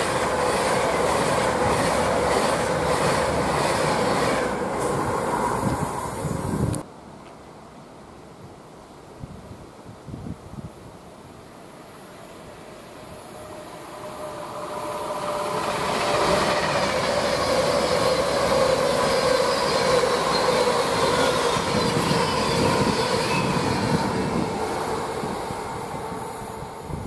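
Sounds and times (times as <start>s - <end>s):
electric train passing: 0.0s - 6.8s, 11.6s - 27.0s.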